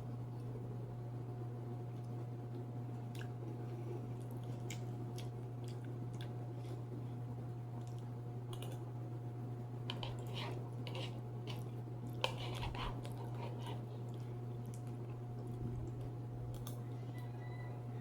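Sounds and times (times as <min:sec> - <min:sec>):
steady low hum: 0:00.0 - 0:18.0
person chewing crunchy food: 0:03.0 - 0:07.2, 0:09.9 - 0:16.8.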